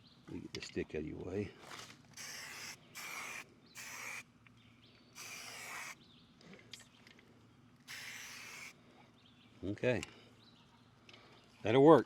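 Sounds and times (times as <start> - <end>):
spray paint can hissing: 2.2 - 4.2, 5.2 - 6.0, 7.9 - 8.7.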